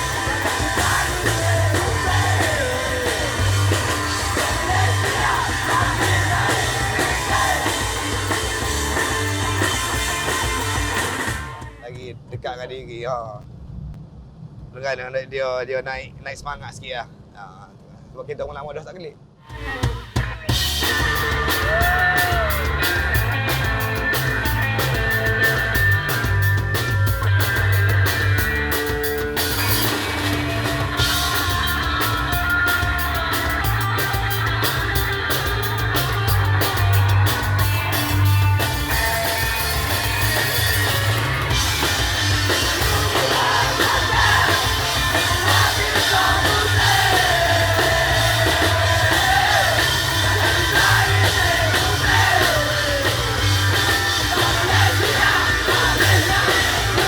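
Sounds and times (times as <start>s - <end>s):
shouted vocals: 0.0s - 11.8s, 19.6s - 23.5s, 38.8s - 57.0s
fast drum kit: 0.0s - 12.0s, 19.5s - 57.0s
distorted guitars: 0.0s - 12.1s, 19.4s - 57.0s.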